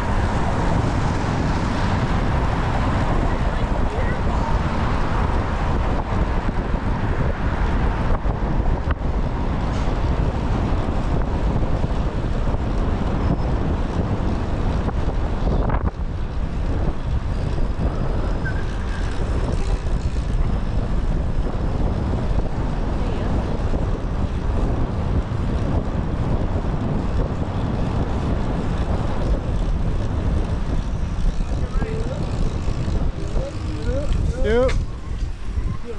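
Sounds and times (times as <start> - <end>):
wind buffeting microphone: 0.0 - 35.9.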